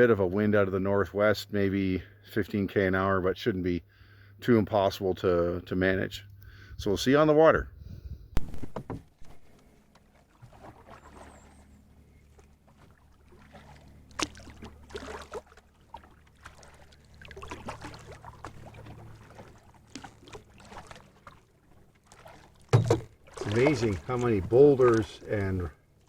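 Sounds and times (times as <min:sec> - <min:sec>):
steady low hum: 0:00.0 - 0:26.0
paddle splashing in water: 0:08.4 - 0:26.0
sharp knocks: 0:22.7 - 0:23.1.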